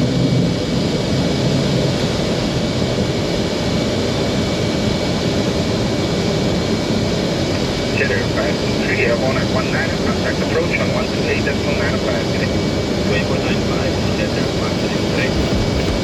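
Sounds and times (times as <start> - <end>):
jet engines roaring: 0.0 - 16.0
rushing air: 14.4 - 16.0.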